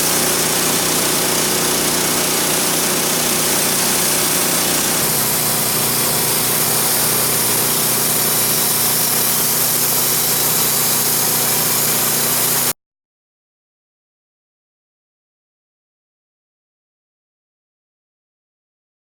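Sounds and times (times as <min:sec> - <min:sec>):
sawmill sawing a log: 0:00.0 - 0:12.7.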